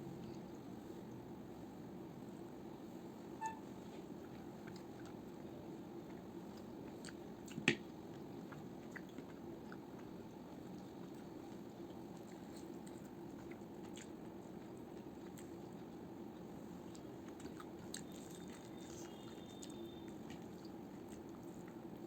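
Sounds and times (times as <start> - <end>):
steady low background hum: 0.0 - 22.0
person chewing food: 4.2 - 21.9.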